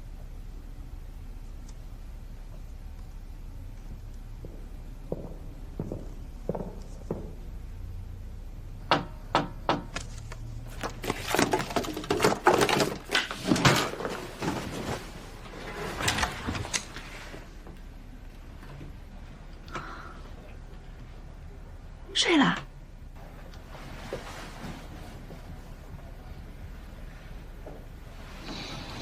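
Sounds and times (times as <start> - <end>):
objects clattering and thunking: 3.9 - 7.7, 8.9 - 19.0
sharp knocks and clicks: 8.9 - 10.2.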